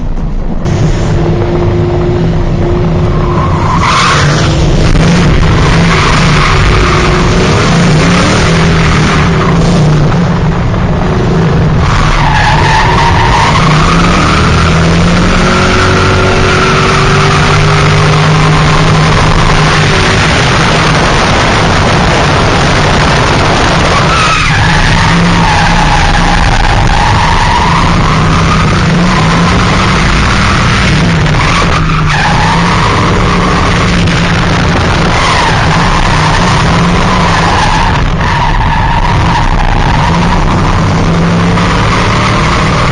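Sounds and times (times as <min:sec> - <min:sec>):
car engine running hard: 0:00.0 - 0:42.9.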